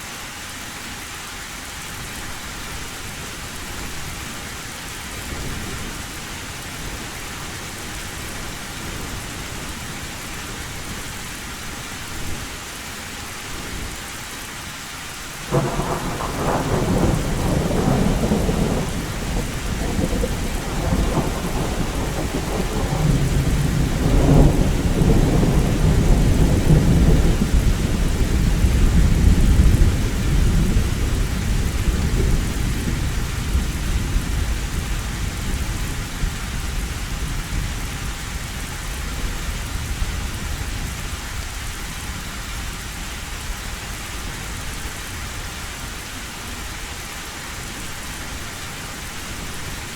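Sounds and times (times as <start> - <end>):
heavy rain on a metal roof: 0.0 - 49.9
thunder rumbling: 15.5 - 41.0.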